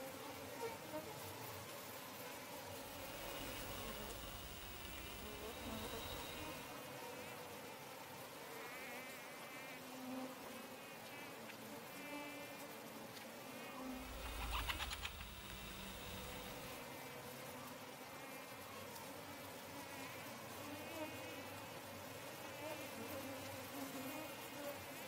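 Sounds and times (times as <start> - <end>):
insects buzzing: 0.0 - 25.0
high warbling chirps: 2.9 - 6.6, 14.0 - 16.7.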